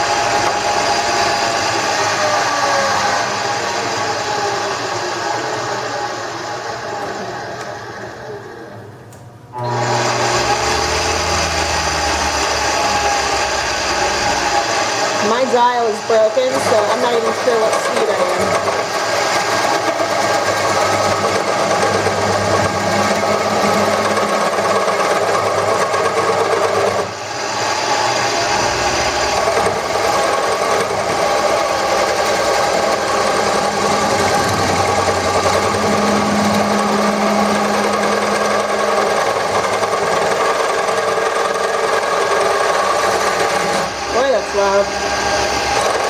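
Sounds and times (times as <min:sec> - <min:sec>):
wood lathe turning tool scraping: 0:00.0 - 0:08.5, 0:09.6 - 0:46.0.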